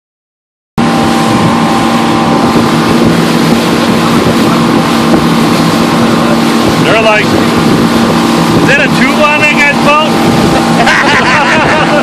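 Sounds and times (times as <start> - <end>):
motorboat engine drone: 0.8 - 12.0
rush of wind and water: 0.8 - 12.0.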